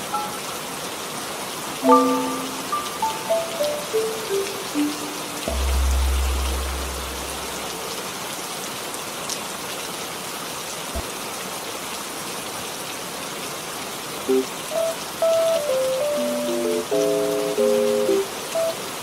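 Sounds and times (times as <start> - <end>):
steady rain: 0.0 - 19.0
deep low boom: 5.5 - 7.9.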